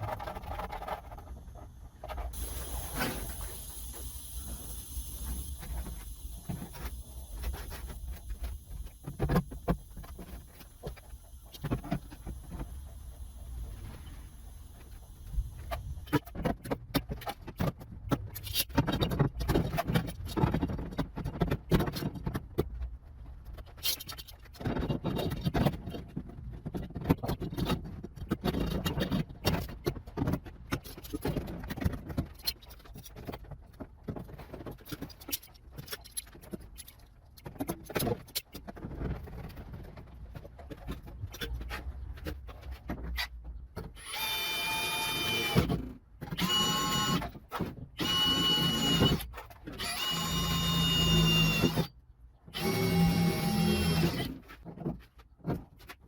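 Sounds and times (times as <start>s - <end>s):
small motor whine: 44.0s - 45.7s, 46.4s - 47.2s, 48.0s - 51.9s, 52.6s - 54.4s.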